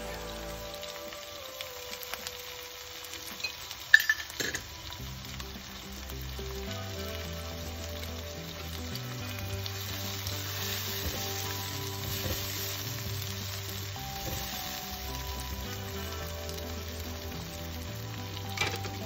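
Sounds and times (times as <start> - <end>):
vegetables sizzling in oil: 0.0 - 19.0
spatula stirring in pan: 9.6 - 16.7.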